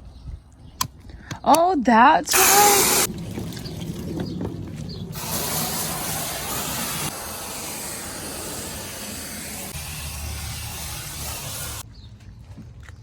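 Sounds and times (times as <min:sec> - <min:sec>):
foam gun spraying hiss: 0:02.3 - 0:03.1, 0:05.2 - 0:11.8.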